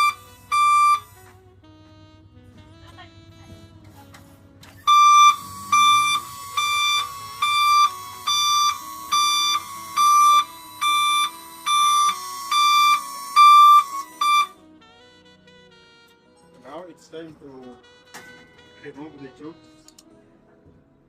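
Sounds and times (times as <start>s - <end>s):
electronic warning beeps: 0.0s - 1.2s, 4.8s - 14.6s.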